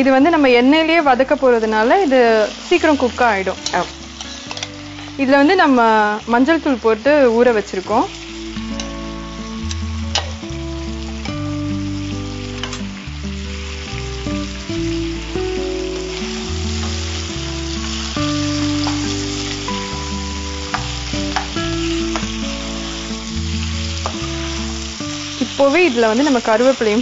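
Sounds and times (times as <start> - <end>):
background music low notes: 0.0 - 27.0
food sizzling in oil: 0.0 - 27.0
spatula scraping a pan: 3.6 - 5.2.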